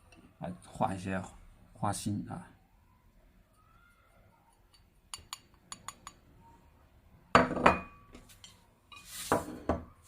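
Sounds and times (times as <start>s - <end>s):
ceramic dishes clinking: 4.7s - 6.2s, 7.4s - 9.9s.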